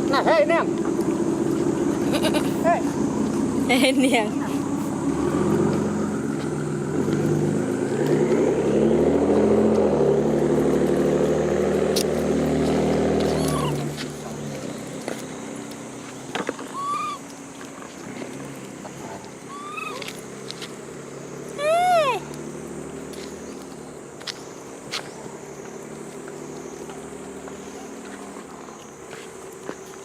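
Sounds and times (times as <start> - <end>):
vehicle engine running: 0.0 - 30.0
monkey calls: 1.7 - 3.0, 13.2 - 14.0, 16.6 - 17.4, 19.4 - 20.1, 21.6 - 22.4.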